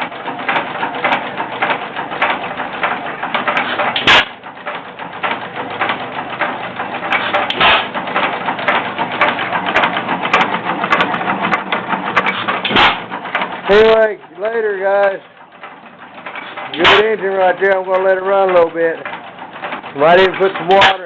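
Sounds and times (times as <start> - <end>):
engine valve gear clatter: 0.0 - 21.0
engine firing bangs: 3.4 - 4.4, 7.1 - 13.1, 16.4 - 18.9.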